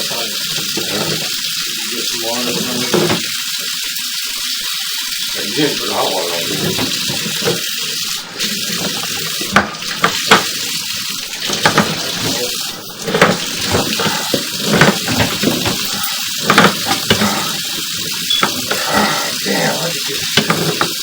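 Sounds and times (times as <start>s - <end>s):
water running and splashing: 0.0s - 21.0s
sharp clicks and knocks: 13.0s - 17.6s.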